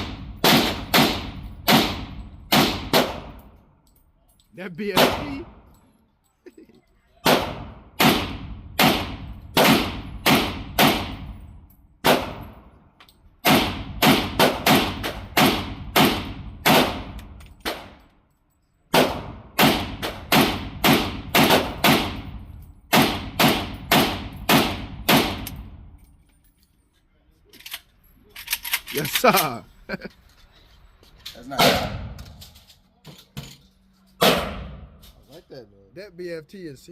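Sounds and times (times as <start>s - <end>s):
rapid pistol gunfire: 0.0s - 3.4s, 7.2s - 11.3s, 12.0s - 12.5s, 13.4s - 18.0s, 18.9s - 25.5s, 34.2s - 34.8s.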